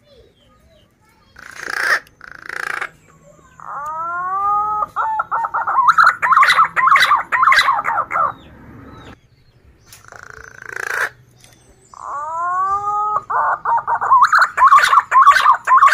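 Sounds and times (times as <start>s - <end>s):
pigeon calling: 1.3s - 9.2s, 9.8s - 15.9s.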